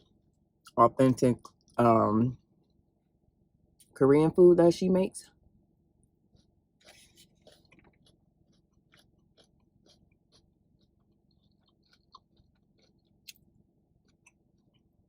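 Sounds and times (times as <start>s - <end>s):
chewing food: 6.0s - 15.0s.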